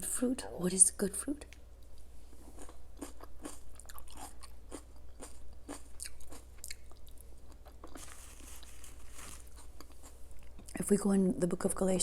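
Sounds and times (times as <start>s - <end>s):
low steady hum: 0.0s - 12.0s
crunchy food chewing: 2.4s - 10.8s.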